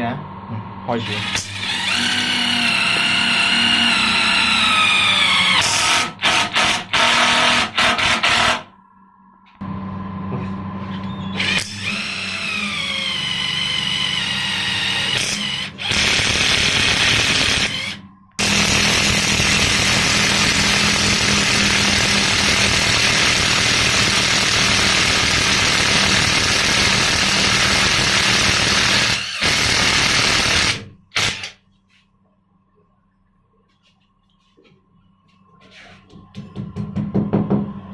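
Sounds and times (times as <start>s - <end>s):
impact wrench running: 11.4s - 31.6s.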